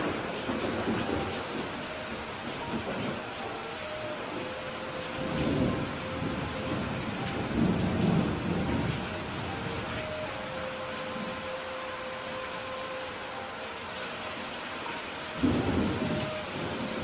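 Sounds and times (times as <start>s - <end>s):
thunder rumbling: 0.0s - 11.5s, 15.4s - 17.0s
steady rain falling: 0.0s - 17.0s.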